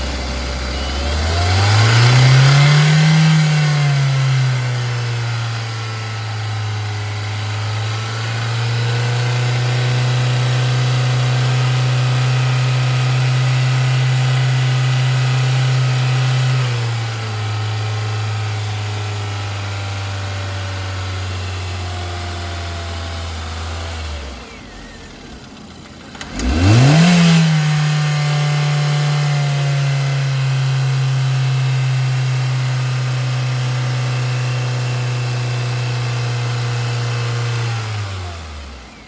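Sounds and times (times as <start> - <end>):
car engine idling and restarting: 0.0 - 39.0.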